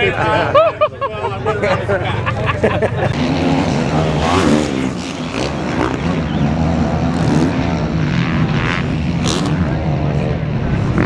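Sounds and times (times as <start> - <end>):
engine running: 2.2 - 11.0.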